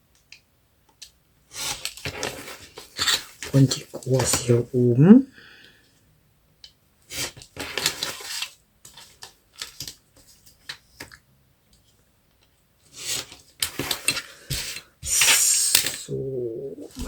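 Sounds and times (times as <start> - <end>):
paper rustling: 1.6 - 4.6, 7.1 - 11.1.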